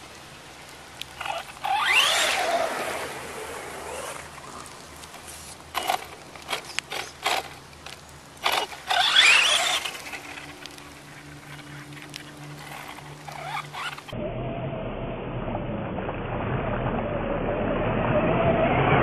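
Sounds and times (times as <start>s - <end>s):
electric motor whining: 1.2s - 4.4s, 8.4s - 14.2s.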